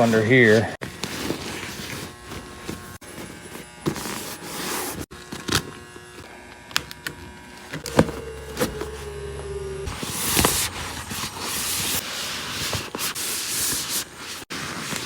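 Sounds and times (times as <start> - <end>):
workshop handling sounds: 0.0 - 5.7, 7.7 - 9.3, 9.9 - 15.0
small electric motor humming: 2.0 - 13.2.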